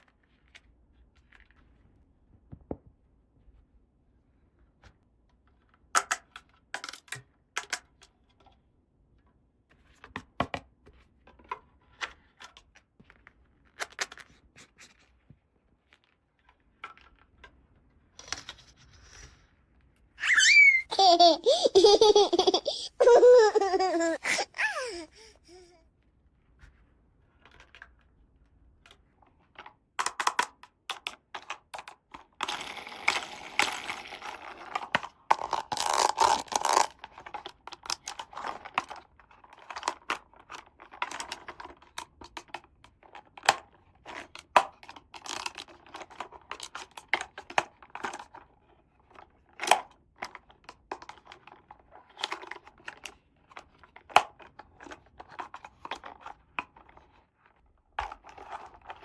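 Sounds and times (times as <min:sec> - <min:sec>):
plastic toy pieces clicking: 0:30.0 - 0:48.4.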